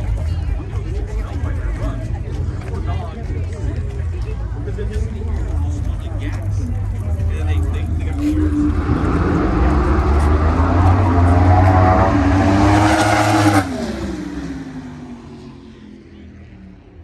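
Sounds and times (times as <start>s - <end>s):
drag car engine at full throttle: 0.0s - 17.0s.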